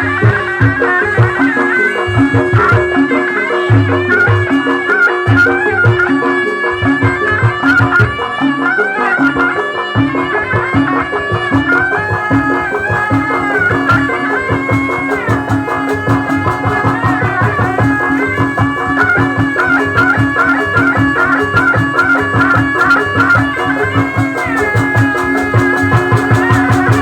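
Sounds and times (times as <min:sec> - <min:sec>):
reed wind instrument melody: 0:00.0 - 0:27.0
drum beat: 0:00.1 - 0:08.2, 0:11.5 - 0:27.0.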